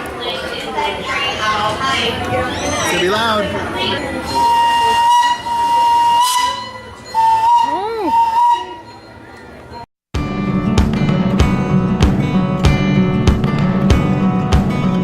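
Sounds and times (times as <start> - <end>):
train whistle blasts: 4.3 - 9.0
child squealing: 7.7 - 8.1.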